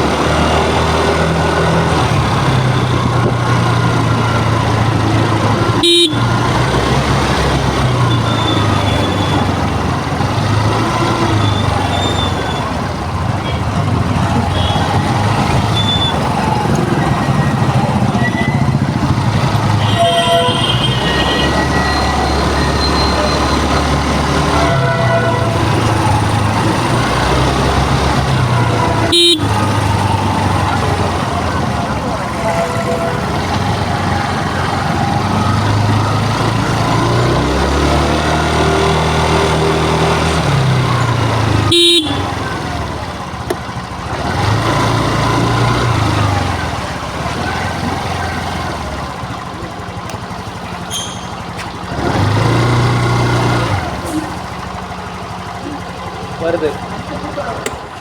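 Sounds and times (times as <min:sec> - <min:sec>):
road traffic noise: 0:00.0 - 0:58.0
vehicle engine running: 0:00.0 - 0:58.0
short horn toot: 0:29.0 - 0:29.8.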